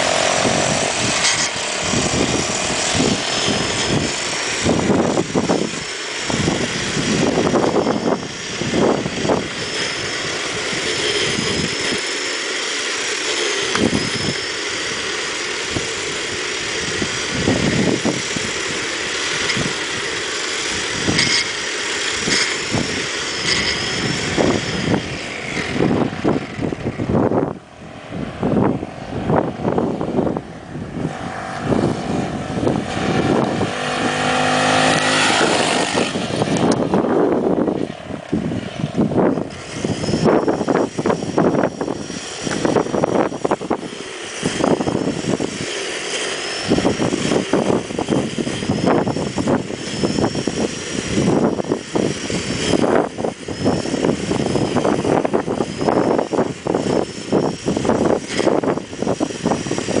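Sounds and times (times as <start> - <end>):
motorbike engine revving: 0.0 - 60.0
rushing buffeting wind noise: 0.0 - 60.0.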